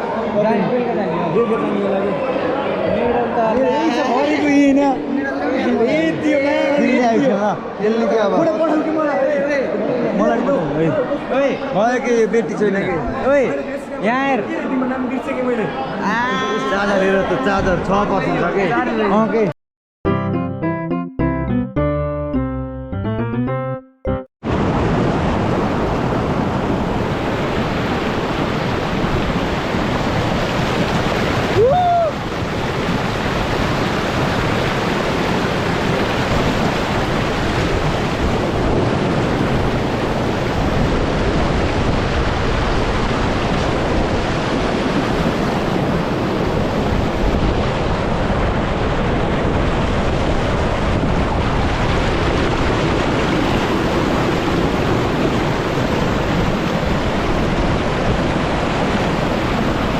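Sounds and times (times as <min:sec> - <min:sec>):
waterfall roaring: 0:24.5 - 0:59.9.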